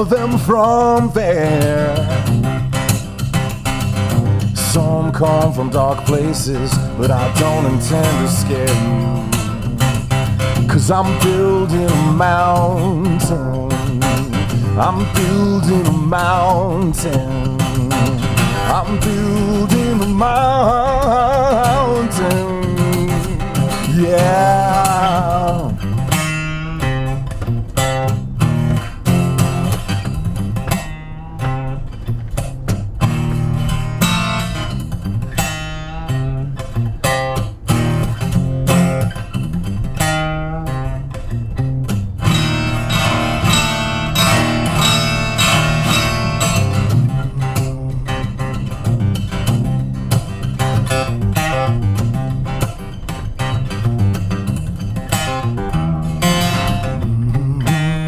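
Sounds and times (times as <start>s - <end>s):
electric guitar playing: 0.0s - 58.0s
person singing yeah: 4.6s - 9.8s, 10.7s - 26.0s, 56.8s - 58.0s.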